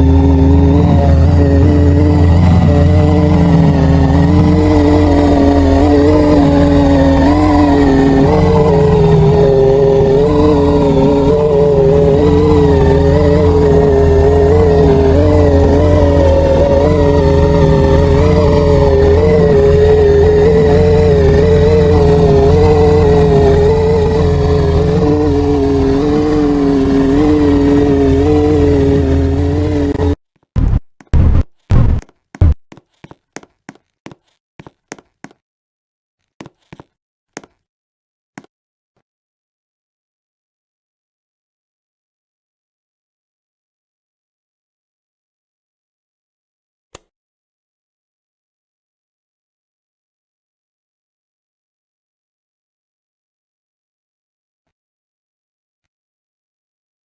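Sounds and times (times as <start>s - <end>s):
lower whine: 0.0s - 32.6s.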